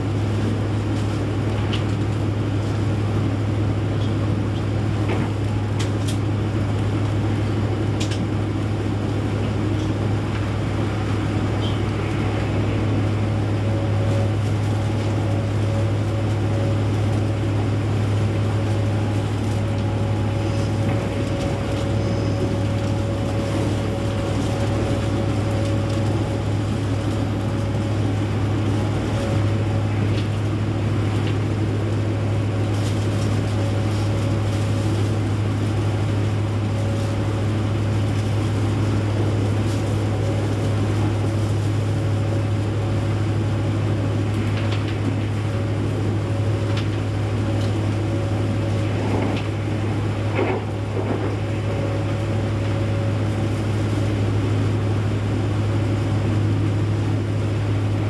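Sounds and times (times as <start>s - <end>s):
train rumble inside carriage: 0.0s - 58.0s
faint steady whine: 8.6s - 58.0s.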